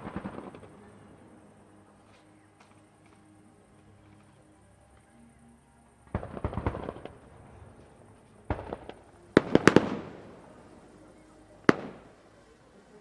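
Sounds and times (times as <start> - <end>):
fireworks crackling and banging: 0.0 - 3.2, 6.1 - 13.0.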